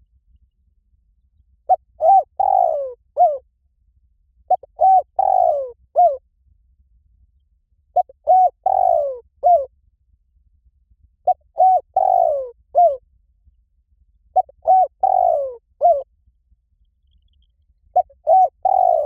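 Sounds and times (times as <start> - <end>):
dove cooing: 1.7 - 3.4, 4.5 - 6.2, 8.0 - 9.7, 11.3 - 13.0, 14.4 - 16.0, 18.0 - 19.0.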